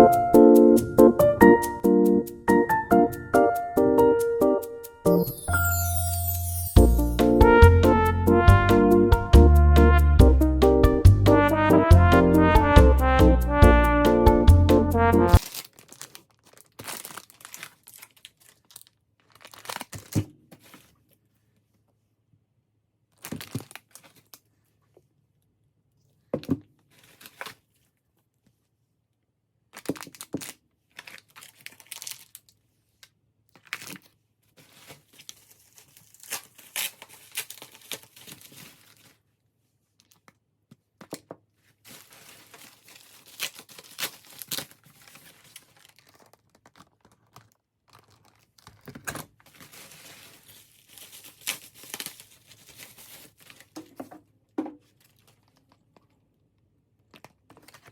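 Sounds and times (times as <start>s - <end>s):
packaging crinkling and tearing: 15.4s - 21.1s, 23.1s - 24.5s, 26.9s - 27.9s, 29.7s - 39.3s, 40.0s - 40.4s, 41.7s - 54.0s, 54.8s - 56.2s, 57.0s - 57.9s.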